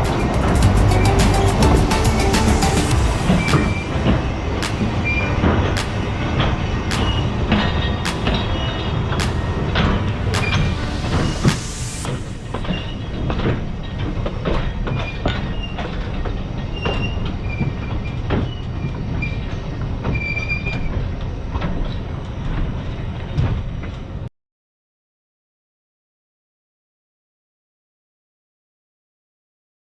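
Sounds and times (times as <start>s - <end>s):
wheels clicking on rails: 0.0s - 11.6s
high wheel squeals: 0.0s - 13.3s
train rumble: 0.0s - 24.3s.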